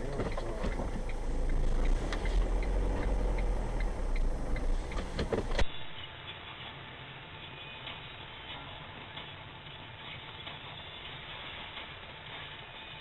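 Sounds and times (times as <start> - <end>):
car road and engine rumble: 0.0 - 13.0
thin ticking: 0.2 - 5.2.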